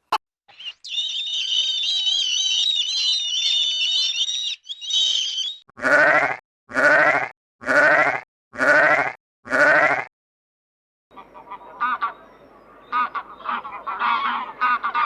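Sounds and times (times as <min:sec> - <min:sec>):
high-pitched chicken calls: 0:00.5 - 0:06.1.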